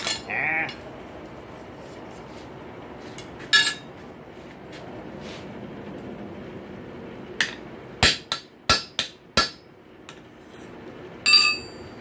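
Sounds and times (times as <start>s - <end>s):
metal tool clinks: 11.2s - 12.0s.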